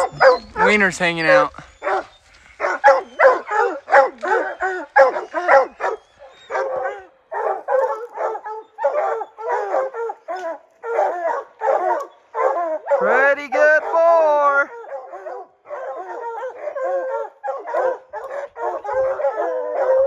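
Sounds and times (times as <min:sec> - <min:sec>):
hounds barking: 0:00.0 - 0:20.0.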